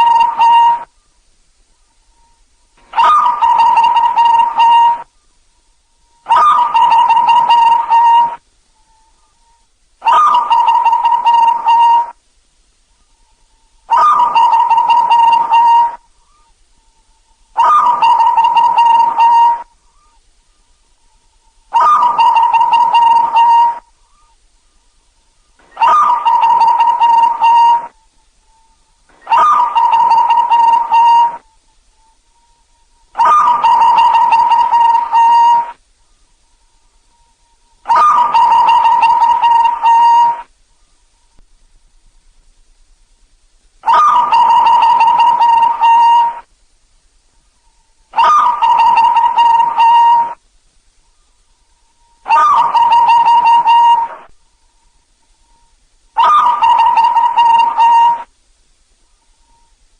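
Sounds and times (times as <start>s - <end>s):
dove cooing: 0.0s - 0.9s, 2.2s - 5.1s, 6.2s - 12.2s, 13.9s - 20.2s, 21.4s - 24.4s, 25.6s - 28.0s, 29.1s - 31.6s, 32.4s - 35.8s, 37.1s - 40.5s, 43.8s - 46.5s, 48.1s - 50.4s, 52.0s - 54.3s, 56.2s - 58.3s.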